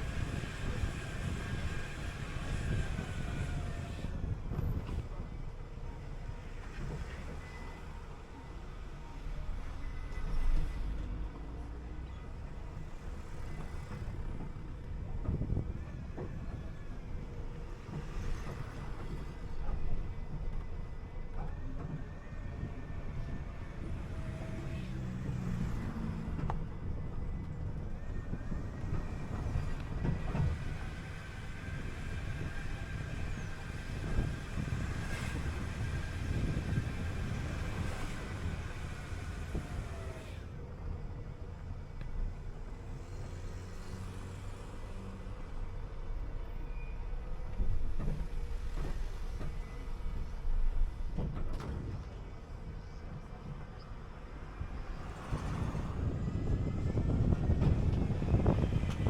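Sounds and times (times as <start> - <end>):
bus engine drone: 0.0 - 59.0
road noise: 0.0 - 59.0
bus body rattling and knocking: 12.3 - 24.6, 25.8 - 40.1, 47.3 - 59.0.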